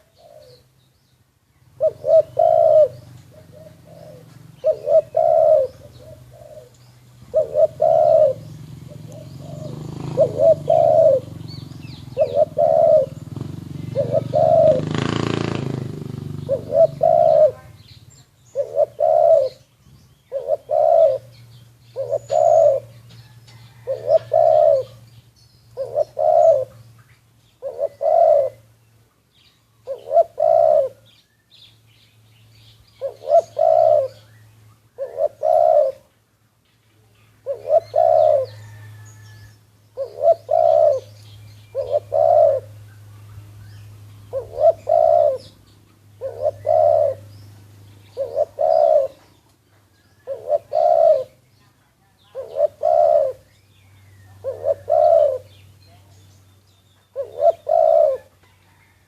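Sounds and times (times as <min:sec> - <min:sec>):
doves cooing: 0:00.0 - 0:00.8, 0:01.7 - 0:28.8, 0:29.8 - 0:31.2, 0:33.0 - 0:36.1, 0:37.3 - 0:56.2, 0:57.0 - 0:59.0.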